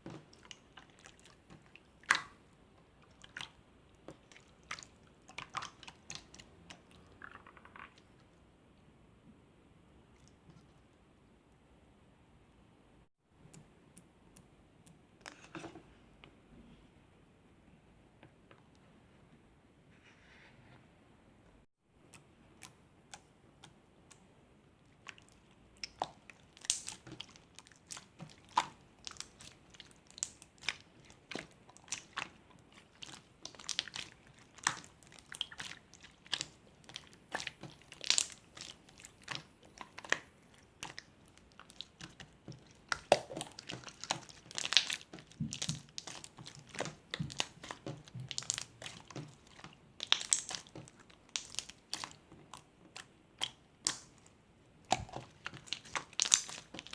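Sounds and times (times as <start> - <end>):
slime squished by hand: 0.0 - 2.4, 25.0 - 56.9.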